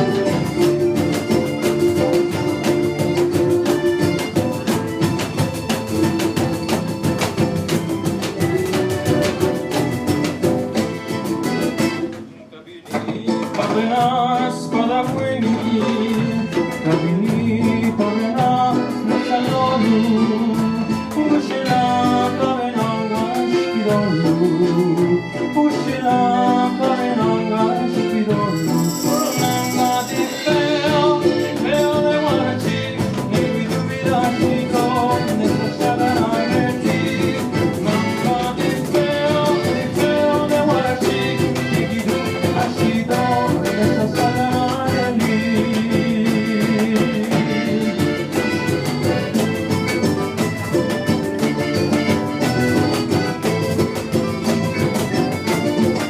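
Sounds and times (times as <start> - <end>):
small folk band playing: 0.0 - 56.0
person singing: 12.8 - 50.0.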